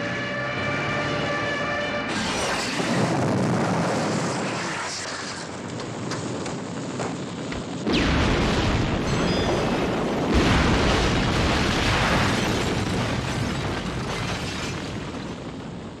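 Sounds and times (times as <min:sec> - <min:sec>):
explosion rumble: 0:07.7 - 0:15.6
plane explosion blast: 0:07.8 - 0:13.4.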